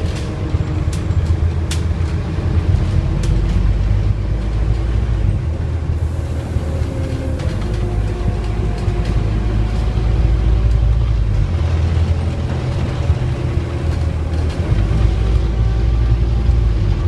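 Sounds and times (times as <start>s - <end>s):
light rattles and clicks: 0.0s - 5.3s
bus engine rumbling: 0.0s - 17.0s.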